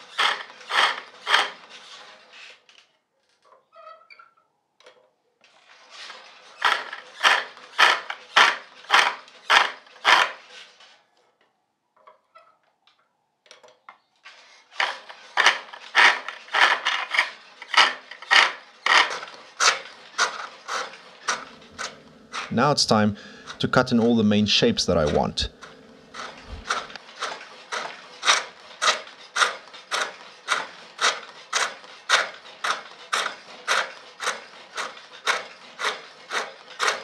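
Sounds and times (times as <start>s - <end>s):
gouge cutting wood on a lathe: 26.1s - 37.0s.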